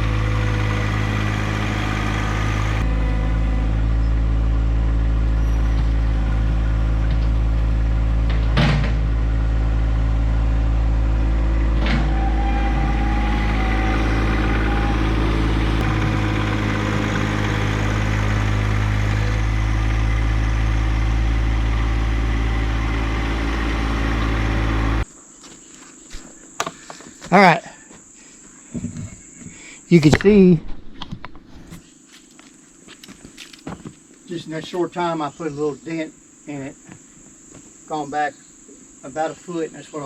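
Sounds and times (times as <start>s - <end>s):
tractor diesel engine running: 0.0s - 25.1s
short whine: 10.5s - 25.0s.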